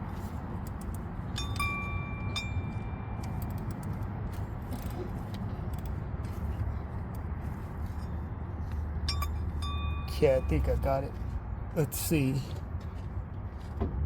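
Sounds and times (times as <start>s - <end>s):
metallic strikes ringing: 1.4s - 3.5s, 9.0s - 10.8s
metal tools clinking: 9.0s - 10.8s.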